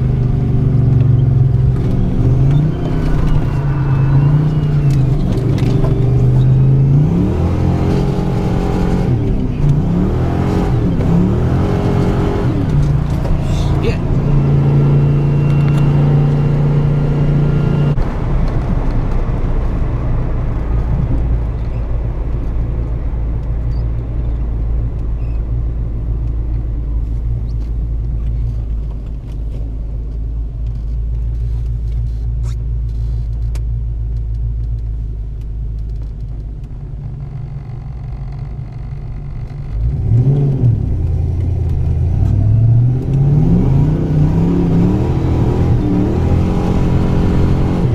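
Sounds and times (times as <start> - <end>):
car engine revving: 0.0 - 24.1, 36.9 - 47.9.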